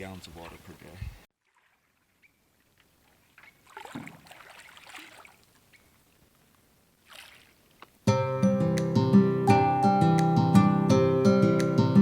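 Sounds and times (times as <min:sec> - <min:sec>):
water splashing and dripping: 0:01.4 - 0:06.2, 0:07.0 - 0:08.0.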